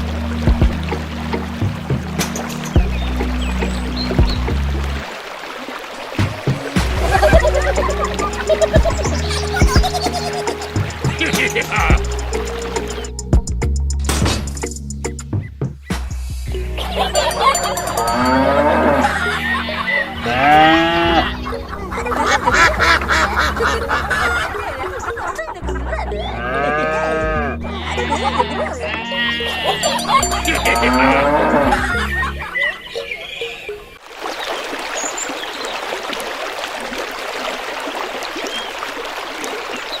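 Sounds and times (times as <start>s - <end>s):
stream water rushing: 0.0s - 13.2s, 16.8s - 25.4s, 32.9s - 40.0s
animal calls: 6.3s - 13.1s.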